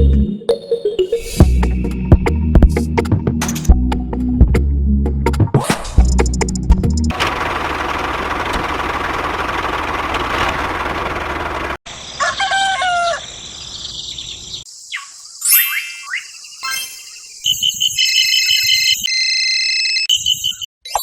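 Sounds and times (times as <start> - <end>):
rooster crowing: 12.1 - 13.3.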